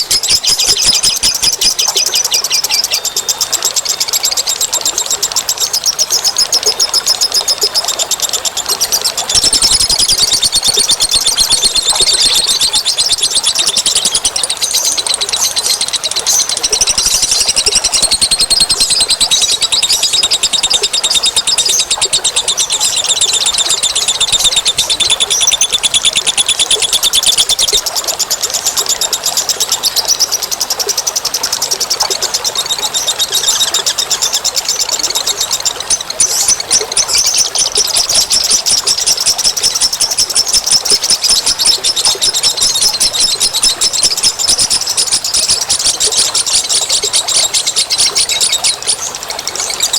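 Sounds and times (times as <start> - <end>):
small birds chattering trill: 0.0 - 49.9.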